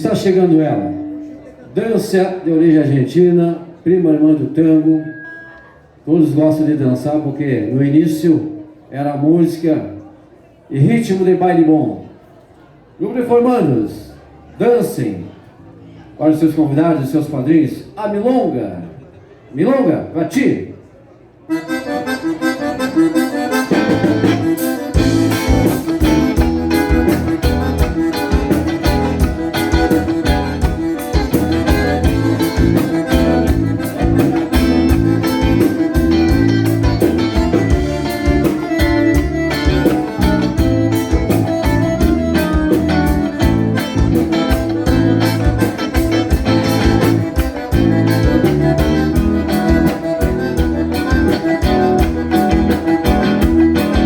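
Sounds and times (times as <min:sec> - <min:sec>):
accordion and guitar dance music: 0:00.0 - 0:03.2, 0:21.5 - 0:54.0.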